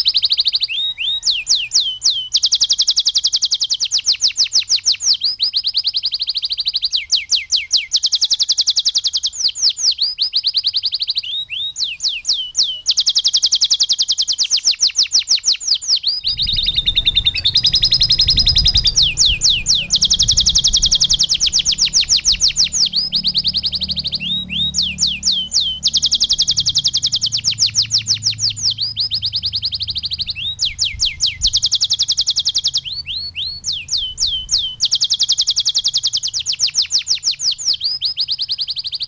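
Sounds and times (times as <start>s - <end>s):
canary singing fast trills: 0.0s - 39.0s
low rumble: 16.2s - 31.7s.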